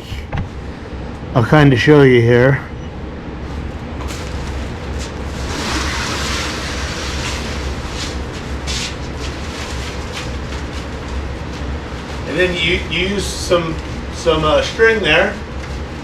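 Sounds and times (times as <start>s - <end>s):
fabric rustling and crackling: 4.0s - 11.6s.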